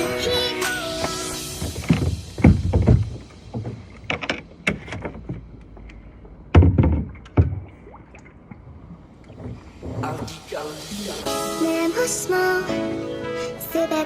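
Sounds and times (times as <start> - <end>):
thumps and knocks on boat: 1.0 - 5.6, 6.5 - 7.8, 9.3 - 10.4.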